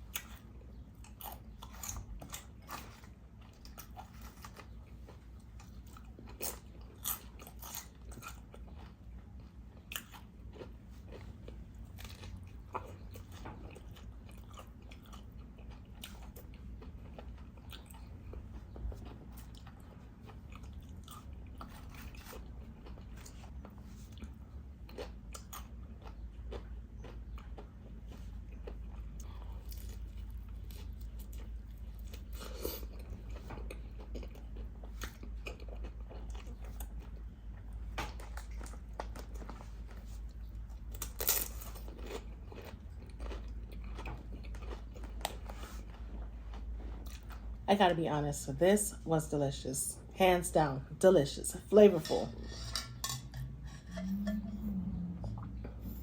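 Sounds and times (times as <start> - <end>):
crunching chips: 40.8 - 46.0.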